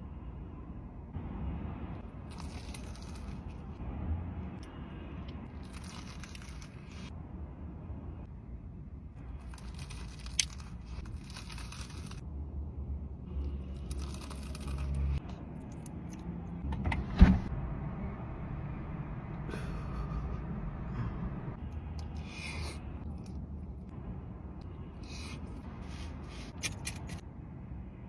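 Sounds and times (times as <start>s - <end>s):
low rumble: 11.9s - 26.4s.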